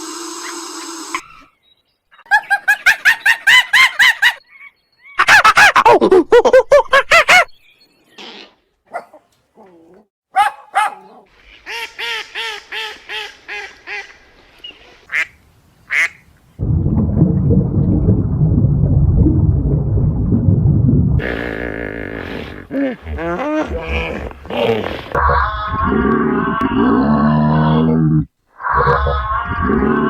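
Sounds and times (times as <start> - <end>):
waterfowl calling: 15.0 - 16.2.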